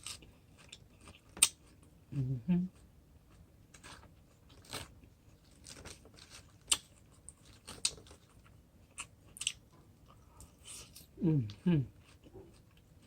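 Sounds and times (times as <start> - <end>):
person chewing crunchy food: 0.0 - 1.9, 2.7 - 11.1.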